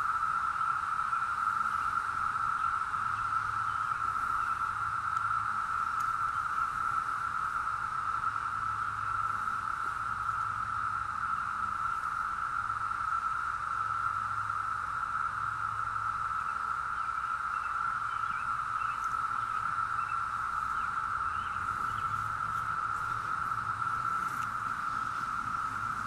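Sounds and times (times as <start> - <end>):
cicadas droning: 0.0 - 26.0.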